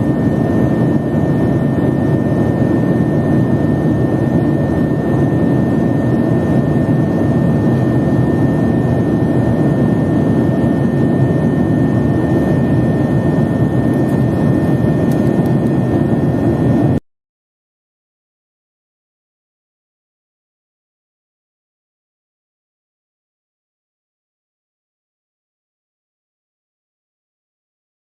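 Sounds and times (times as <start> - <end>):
jet engine noise in cabin: 0.0 - 17.0.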